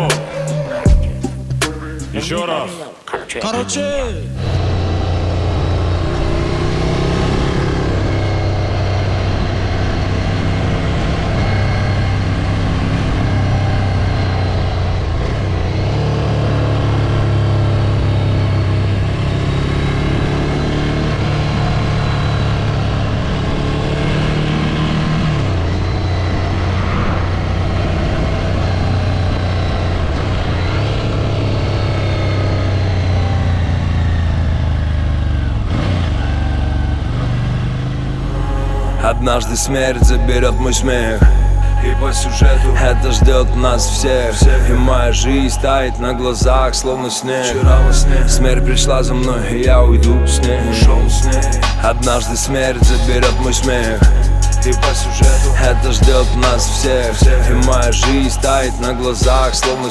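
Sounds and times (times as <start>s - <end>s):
motorcycle engine running: 40.0s - 45.4s.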